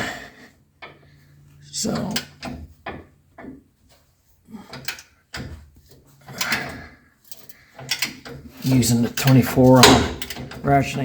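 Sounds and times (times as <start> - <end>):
ratcheting breaker bar: 4.6 - 11.0.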